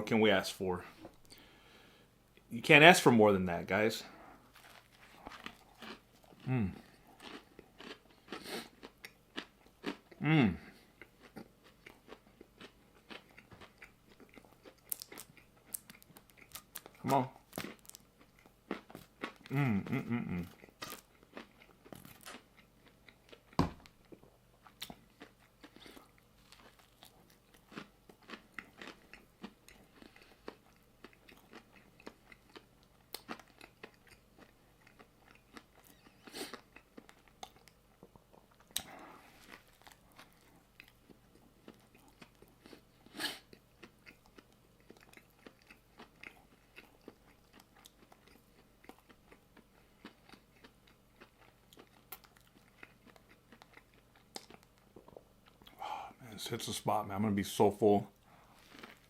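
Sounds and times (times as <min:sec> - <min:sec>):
chewing crunchy food: 0:04.0 - 0:55.9, 0:58.1 - 0:59.0.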